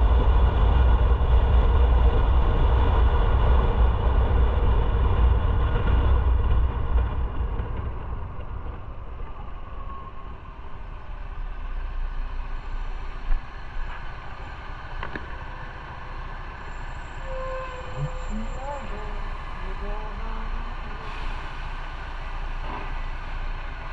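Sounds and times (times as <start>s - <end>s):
road noise: 0.0s - 23.9s.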